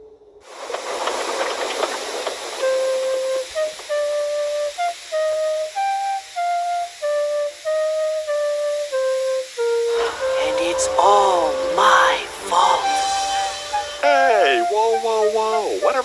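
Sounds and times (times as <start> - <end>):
hiss: 0.4 - 16.0
slow flute melody: 2.6 - 16.0.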